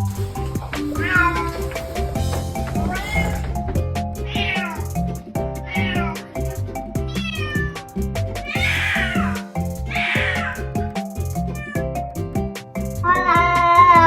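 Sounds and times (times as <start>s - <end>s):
background music with beat: 0.0s - 14.0s
cat meowing: 0.9s - 2.0s, 2.7s - 3.6s, 4.2s - 5.0s, 5.6s - 7.8s, 8.4s - 10.8s, 11.5s - 11.9s.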